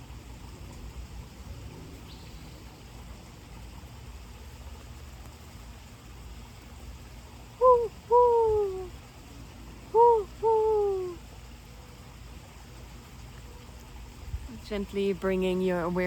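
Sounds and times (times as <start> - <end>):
bird calling: 7.6 - 8.9, 9.9 - 11.2.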